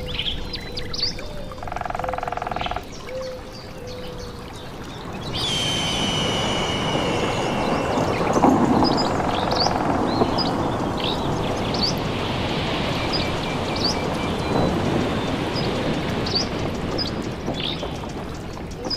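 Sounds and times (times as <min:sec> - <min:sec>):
steady rain: 0:00.0 - 0:18.9
birds chirping: 0:02.0 - 0:18.9
thunder rumble: 0:05.1 - 0:18.9
high drawn-out note: 0:05.4 - 0:09.7.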